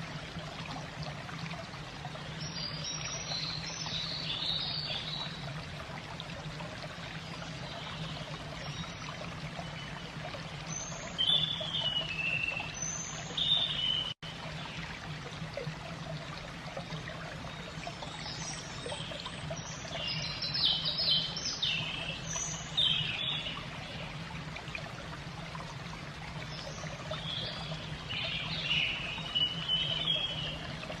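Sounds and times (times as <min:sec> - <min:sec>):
water trickling: 0:00.0 - 0:31.0
small birds chirping: 0:26.6 - 0:30.7.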